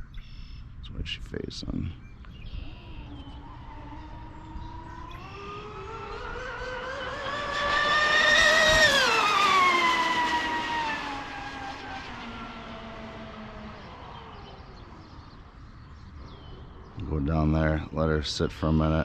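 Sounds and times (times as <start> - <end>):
electric model boat whining past: 2.4 - 16.8.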